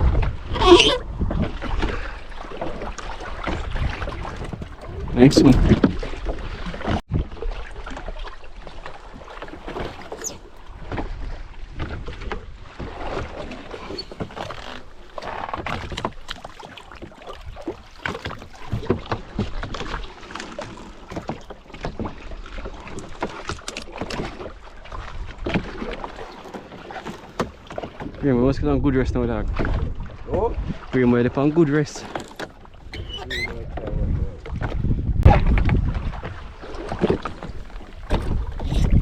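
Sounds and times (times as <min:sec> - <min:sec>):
water splashing around boat: 0:00.0 - 0:28.3, 0:29.4 - 0:39.0.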